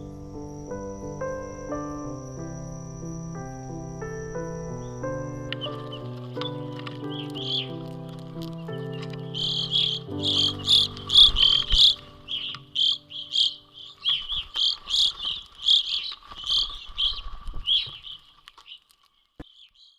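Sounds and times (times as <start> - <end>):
soft music: 0.0 - 14.8
high chirping calls: 0.0 - 19.9.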